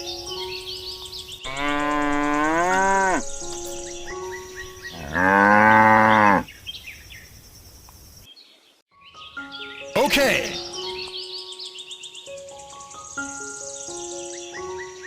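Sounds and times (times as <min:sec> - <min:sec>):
cow mooing: 0:01.4 - 0:03.2, 0:04.9 - 0:06.5.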